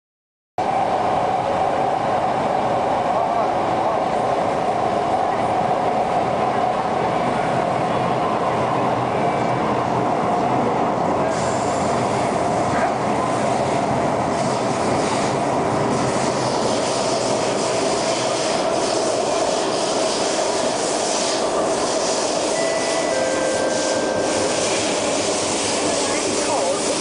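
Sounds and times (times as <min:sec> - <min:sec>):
train wheels rumbling on rail: 0:00.6 - 0:27.0
steady whine: 0:22.6 - 0:27.0.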